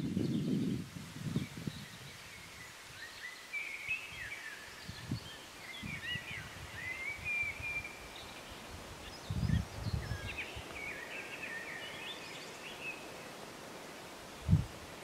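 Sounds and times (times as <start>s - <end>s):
songbird twittering: 1.4s - 13.2s.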